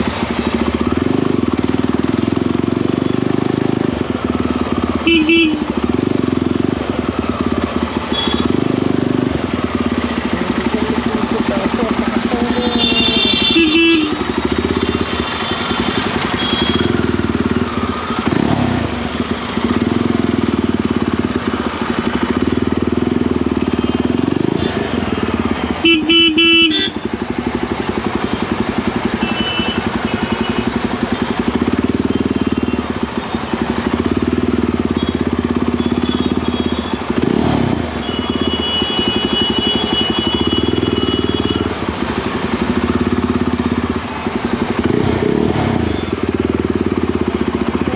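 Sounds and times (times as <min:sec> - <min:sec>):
motorcycle engine running: 0:00.0 - 0:47.9
vehicle horn honking: 0:05.0 - 0:05.9, 0:08.1 - 0:08.8, 0:12.2 - 0:17.2, 0:23.8 - 0:27.1, 0:29.1 - 0:30.7, 0:34.8 - 0:37.4, 0:38.0 - 0:41.7.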